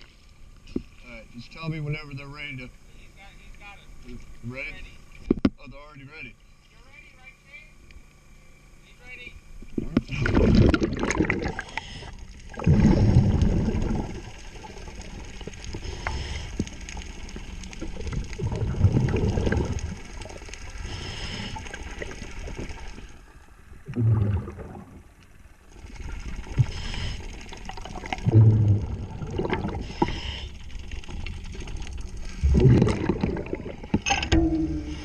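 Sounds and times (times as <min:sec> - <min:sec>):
gurgling exhaled bubbles: 0:09.7 - 0:35.0
regulator inhalation hiss: 0:11.5 - 0:12.3, 0:15.7 - 0:16.8, 0:20.7 - 0:22.0, 0:26.6 - 0:27.6, 0:29.7 - 0:30.9.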